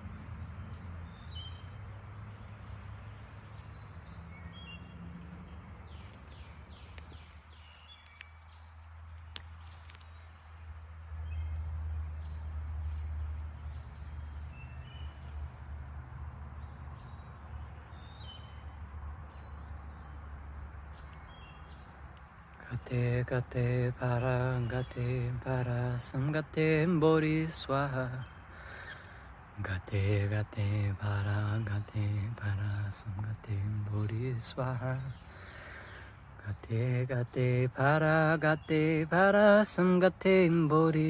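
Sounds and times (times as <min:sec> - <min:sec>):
high insect drone: 0:00.0 - 0:41.0
short bird chirps: 0:02.4 - 0:08.7.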